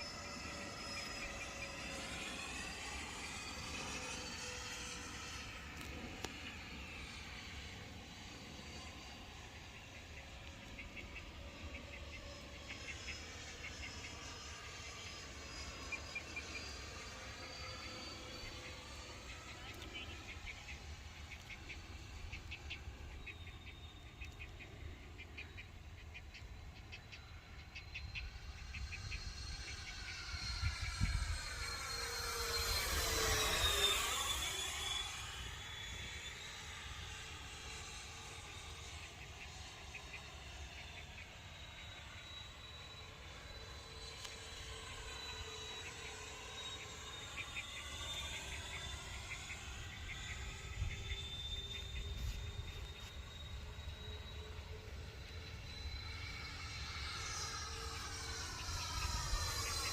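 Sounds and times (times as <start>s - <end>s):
jet fans whining pass: 0.0s - 59.9s
faint chirps: 9.5s - 59.9s
wind rumble on microphone: 30.3s - 31.6s.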